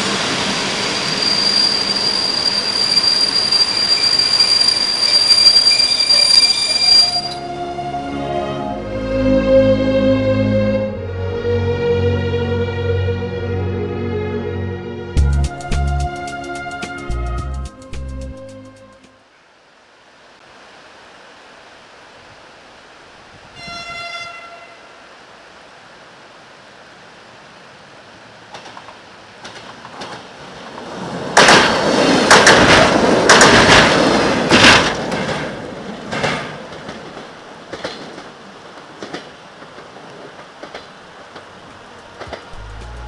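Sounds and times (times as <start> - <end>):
train horn blast: 6.2 - 13.9, 23.5 - 25.0
wheels clacking on steel bridge: 28.4 - 43.0.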